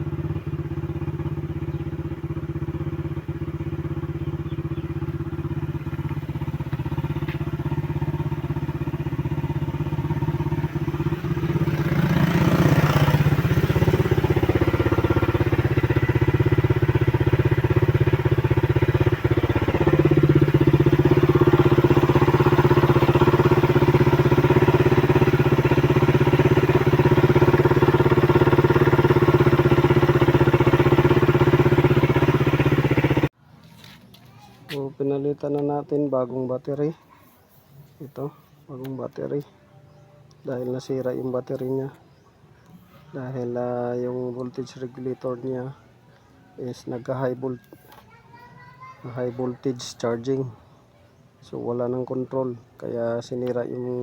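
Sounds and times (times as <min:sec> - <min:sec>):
motorcycle engine running: 0:00.0 - 0:34.2.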